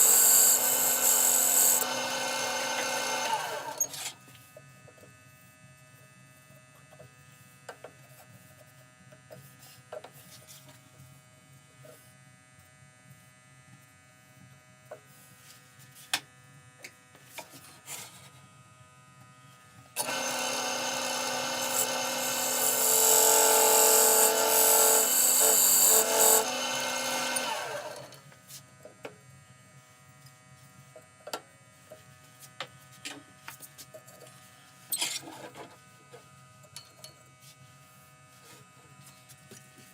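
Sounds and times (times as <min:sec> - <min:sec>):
electric power tool running: 0:00.0 - 0:04.0, 0:20.0 - 0:28.2.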